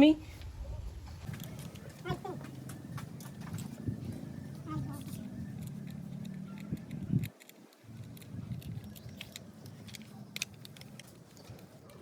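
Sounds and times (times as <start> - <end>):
plastic toy clicks and scrapes: 4.9 - 11.7.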